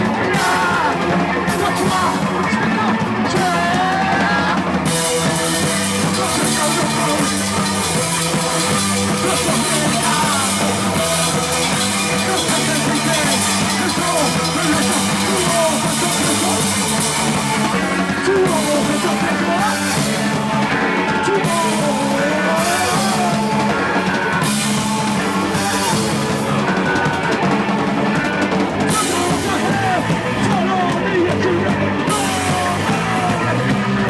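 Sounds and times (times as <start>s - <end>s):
distorted guitar: 0.0s - 34.0s
punk rock band playing: 0.0s - 34.0s
crashing cymbals: 5.4s - 17.5s.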